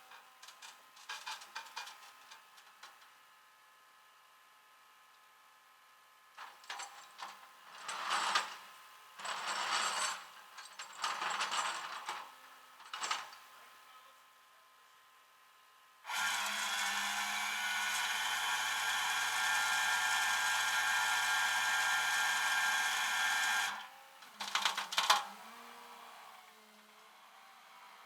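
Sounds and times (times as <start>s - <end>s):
small electric motor running: 16.1s - 23.8s.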